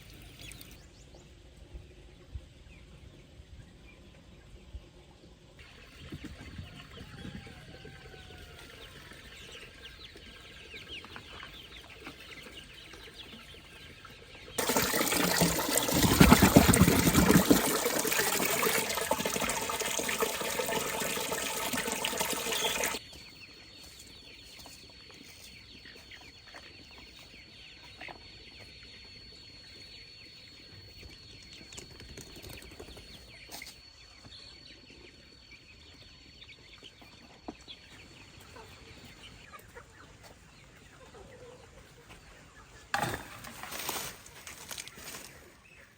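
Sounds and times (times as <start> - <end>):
chickens clucking: 36.8 - 43.1.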